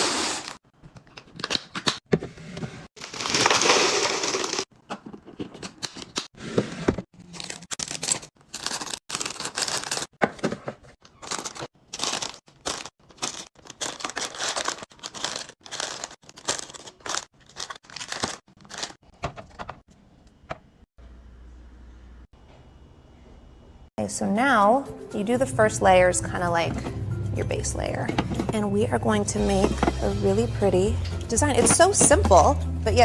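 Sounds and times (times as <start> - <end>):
wrappers crinkling and tearing: 7.2 - 10.1, 11.2 - 19.0.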